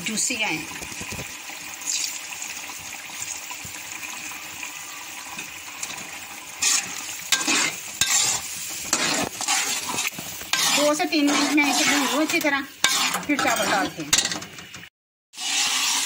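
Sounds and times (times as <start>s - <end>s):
chickpeas sizzling in oil: 0.0s - 16.0s
steel spoon scraping pan: 6.6s - 14.5s, 15.4s - 16.0s.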